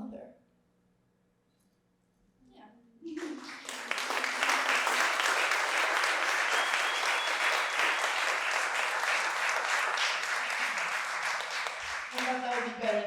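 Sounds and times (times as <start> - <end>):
audience applauding: 3.2 - 13.0
faint whistle: 6.2 - 8.5.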